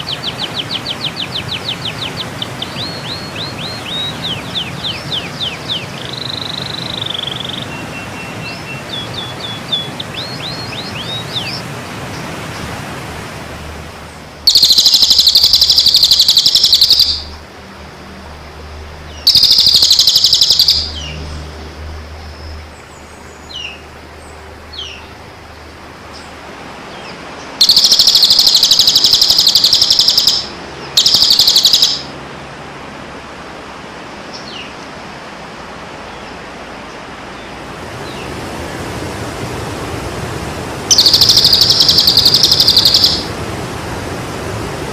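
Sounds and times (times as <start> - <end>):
songbird whistled notes and trills: 0.0 - 11.6, 14.5 - 17.4, 19.1 - 21.2, 27.0 - 32.2, 40.9 - 43.3
short bird chirps: 14.5 - 17.4, 19.3 - 21.2, 27.6 - 32.1, 40.9 - 43.3.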